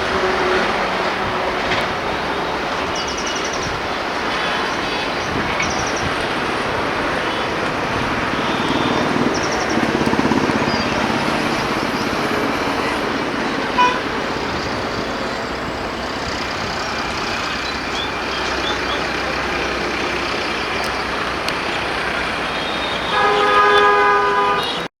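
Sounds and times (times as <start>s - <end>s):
train horn: 0.0s - 2.6s, 11.0s - 14.5s, 22.7s - 24.9s
train rushing past: 0.0s - 24.8s.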